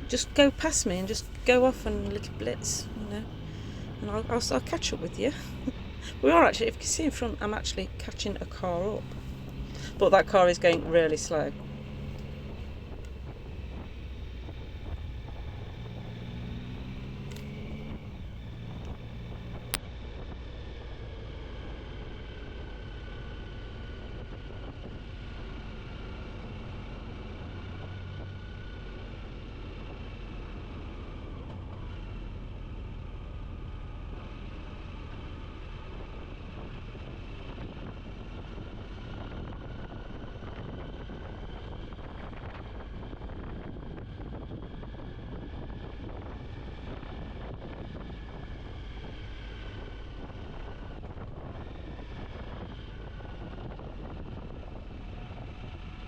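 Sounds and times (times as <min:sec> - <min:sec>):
motorcycle engine running: 0:00.0 - 0:19.8
wind rushing over microphone: 0:36.1 - 0:56.0.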